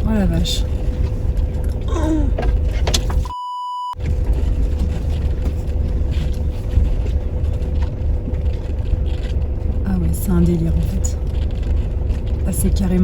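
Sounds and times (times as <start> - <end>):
vehicle engine rumbling under load: 0.0 - 3.3, 4.0 - 13.0
censor bleep: 3.3 - 4.0.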